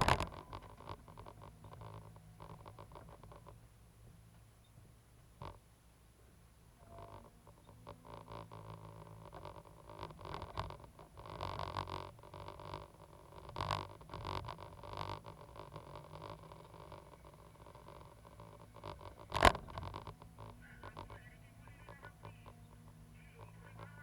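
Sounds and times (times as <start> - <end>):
excavator diesel engine: 6.2 - 24.0.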